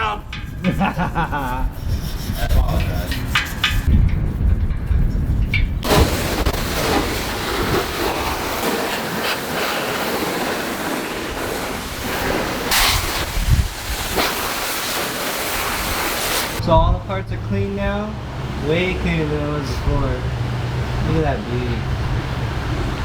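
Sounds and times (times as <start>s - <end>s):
wind rumble on microphone: 0.0s - 23.0s
hose spraying water on metal: 5.8s - 16.6s.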